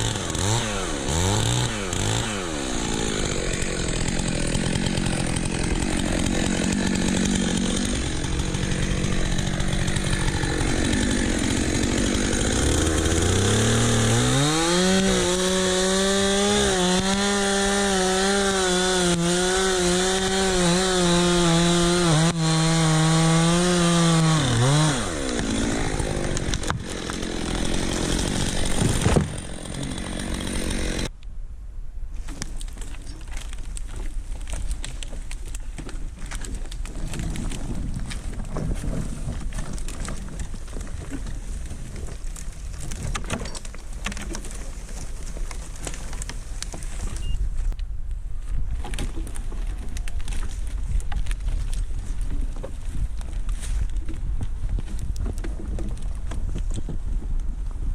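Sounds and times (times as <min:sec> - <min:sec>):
chainsaw sawing wood: 0:00.0 - 0:31.1.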